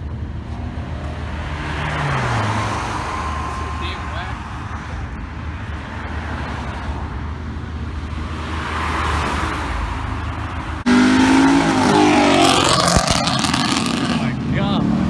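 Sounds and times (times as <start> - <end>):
car engines running: 0.0 - 15.0
loud car engine revving: 0.0 - 15.0.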